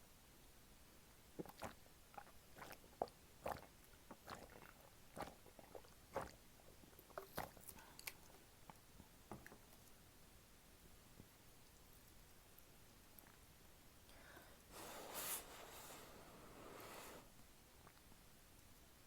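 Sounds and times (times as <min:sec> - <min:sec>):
chewing noodles: 0:01.4 - 0:08.4.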